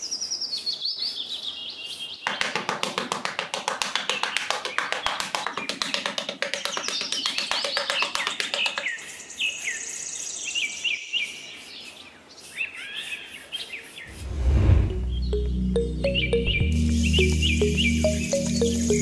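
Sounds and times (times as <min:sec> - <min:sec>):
birds chirping: 0:14.9 - 0:19.0.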